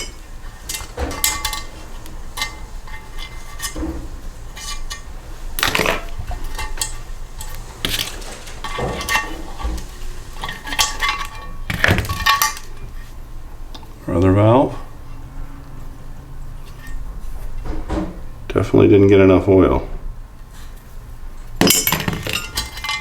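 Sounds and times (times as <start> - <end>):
metal tools clinking on a bench: 0.0 - 3.9, 4.5 - 12.8, 21.6 - 23.0.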